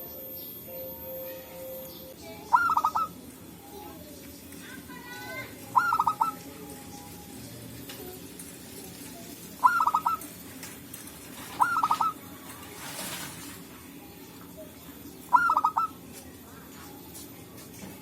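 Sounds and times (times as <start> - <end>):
dove cooing: 2.5 - 3.3, 5.3 - 6.5, 9.6 - 10.4, 11.3 - 12.2, 15.3 - 16.0.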